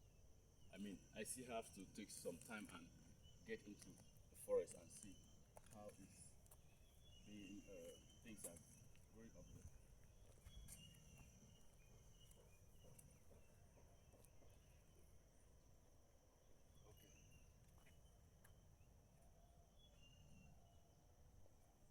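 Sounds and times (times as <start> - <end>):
high-pitched insect drone: 0.5 - 15.1.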